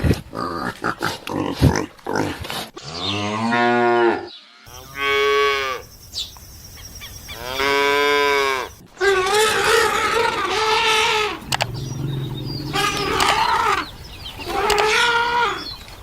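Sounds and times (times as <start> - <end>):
wavering animal call: 7.3 - 15.8
cow mooing: 7.4 - 15.6.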